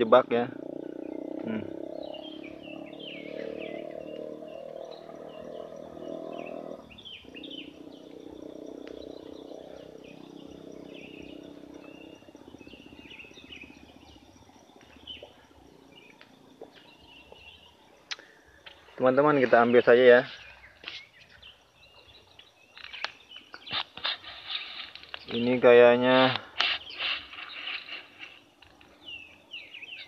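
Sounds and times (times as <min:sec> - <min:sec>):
low steady drone: 0:00.0 - 0:18.6
small birds chirping: 0:00.0 - 0:30.0.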